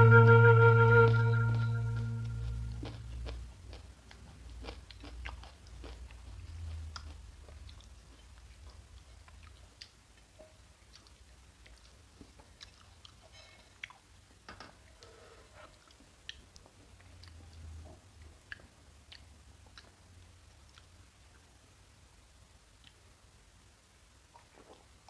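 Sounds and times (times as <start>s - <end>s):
person chewing soft food: 1.9s - 14.1s, 15.6s - 21.7s, 24.3s - 25.0s.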